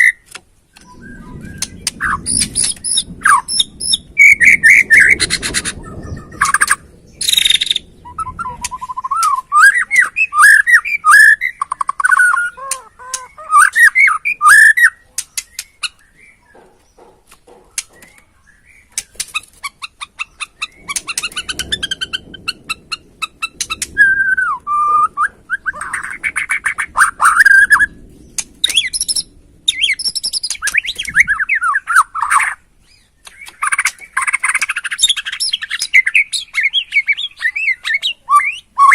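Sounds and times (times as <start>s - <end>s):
bird singing whistled phrases: 0.8s - 5.2s, 5.9s - 16.4s, 23.8s - 26.4s, 28.6s - 38.9s.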